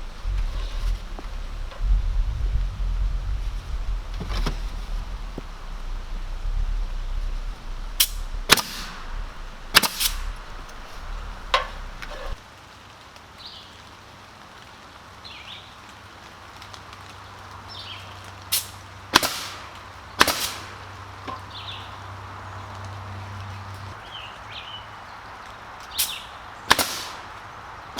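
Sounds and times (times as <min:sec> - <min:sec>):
sharp knocks: 0:00.0 - 0:12.4
steady low hum: 0:00.0 - 0:12.4.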